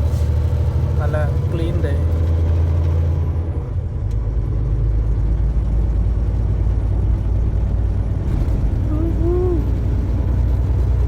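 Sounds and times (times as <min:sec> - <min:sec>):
road noise: 0:00.0 - 0:11.0
truck engine drone in cab: 0:00.0 - 0:11.0.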